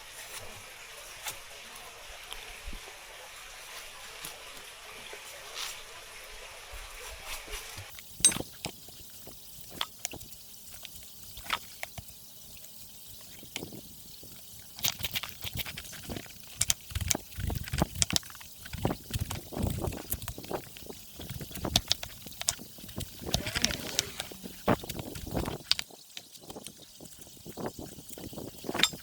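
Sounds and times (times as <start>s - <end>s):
liquid pouring: 7.9s - 29.0s
cookware and utensils clinking: 8.2s - 8.8s, 27.8s - 29.0s.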